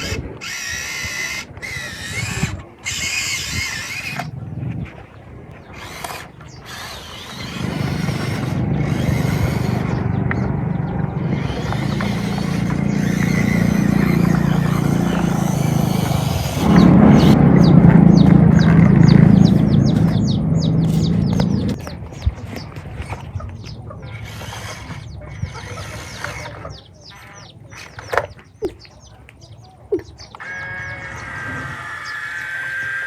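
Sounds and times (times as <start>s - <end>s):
small machine motor humming: 0.0s - 29.1s, 30.0s - 33.0s
high wavering squeals: 5.7s - 21.8s, 30.4s - 33.0s.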